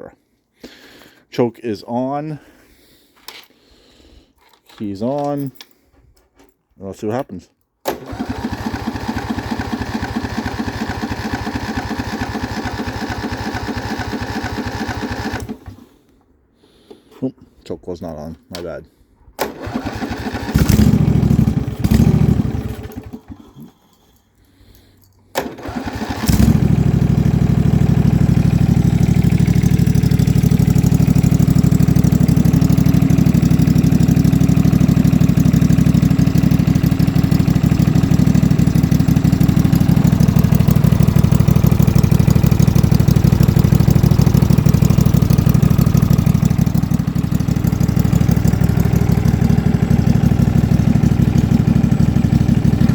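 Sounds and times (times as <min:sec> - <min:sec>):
small engine cranking: 0:07.8 - 0:16.0, 0:19.4 - 0:52.9
small engine running: 0:07.9 - 0:15.9, 0:19.4 - 0:24.1, 0:25.3 - 0:52.9.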